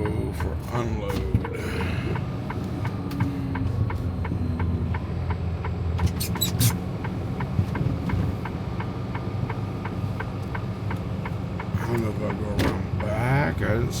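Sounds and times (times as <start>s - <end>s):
truck diesel engine running: 0.0s - 14.0s
turn signal ticking: 0.0s - 14.0s
high squeaks: 6.1s - 6.8s.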